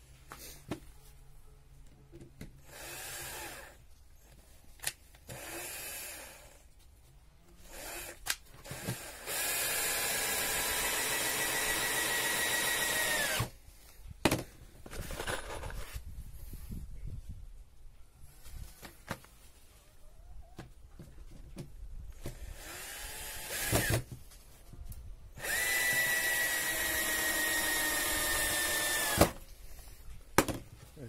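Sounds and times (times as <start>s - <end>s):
electric drill running: 2.6s - 3.8s, 5.3s - 6.6s, 7.7s - 13.5s, 22.4s - 24.0s, 25.4s - 29.4s.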